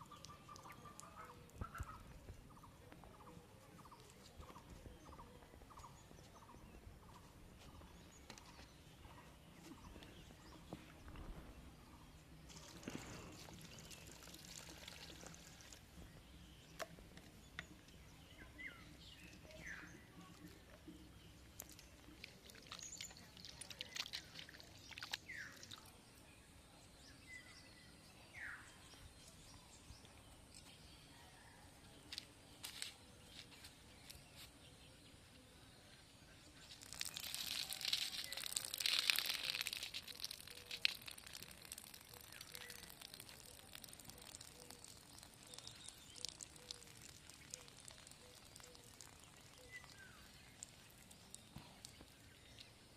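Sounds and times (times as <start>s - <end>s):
bird chirps: 36.3s - 52.9s.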